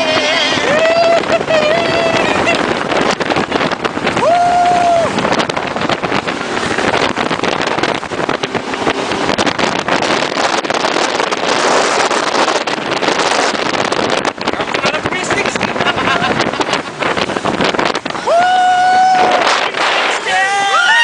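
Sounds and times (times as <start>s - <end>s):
jet boat engine and water rush: 0.0s - 21.0s.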